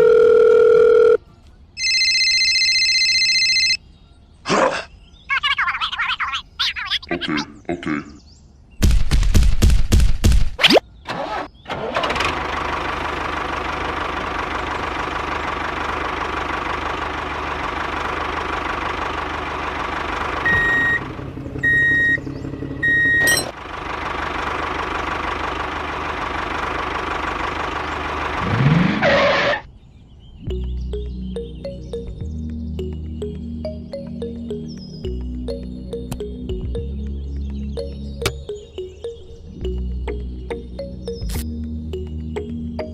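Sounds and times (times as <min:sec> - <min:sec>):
small engine starting and running: 0:11.0 - 0:29.7.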